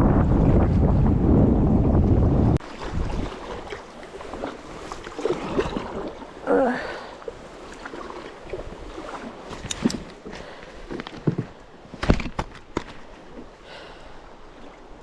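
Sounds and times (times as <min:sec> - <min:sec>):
wind on microphone: 0:00.0 - 0:06.2
rushing water: 0:02.6 - 0:15.0.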